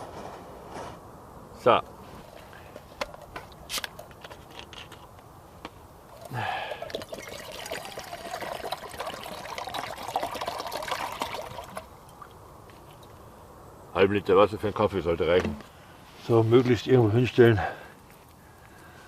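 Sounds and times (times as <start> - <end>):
water pouring into pot: 6.1 - 12.3.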